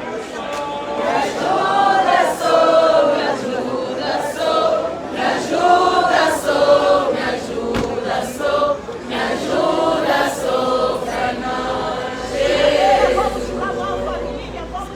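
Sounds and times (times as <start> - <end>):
group singing a hymn: 0.0 - 14.9.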